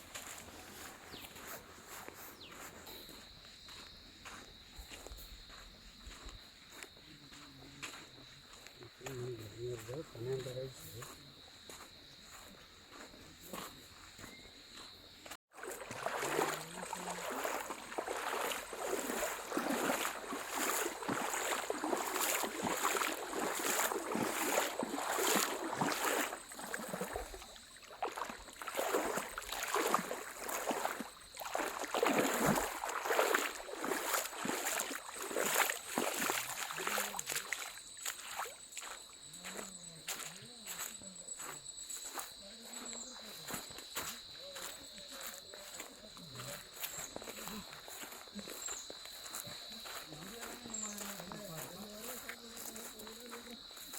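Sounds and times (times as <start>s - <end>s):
crickets droning: 0.0s - 53.9s
rushing splashing water: 15.5s - 38.6s.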